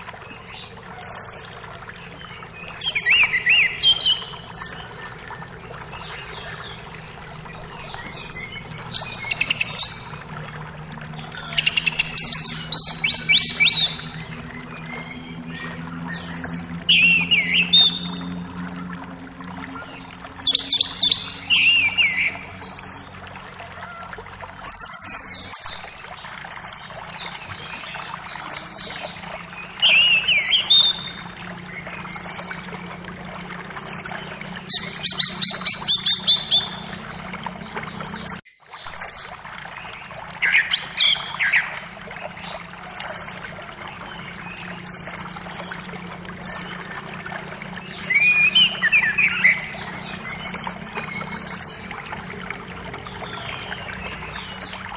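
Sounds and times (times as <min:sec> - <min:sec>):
creek flowing: 0:00.0 - 0:54.9
forest birds singing: 0:00.0 - 0:54.9.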